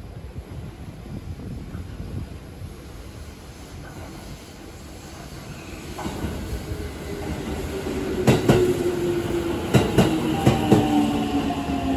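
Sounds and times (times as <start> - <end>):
electric train whine: 2.8 - 11.9
train wheels clacking on rail joint: 8.2 - 8.8, 9.6 - 11.0.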